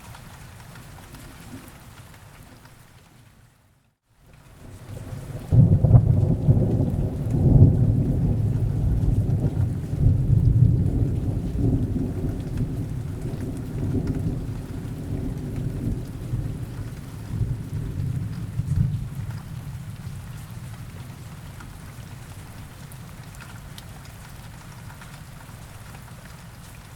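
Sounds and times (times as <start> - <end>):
steady rain: 0.0 - 26.9
thunder rumbling: 5.0 - 21.0.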